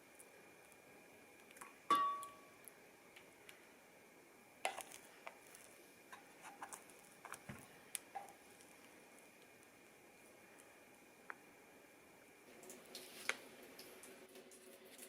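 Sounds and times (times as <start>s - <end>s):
small objects clicking and tapping: 4.7s - 8.9s.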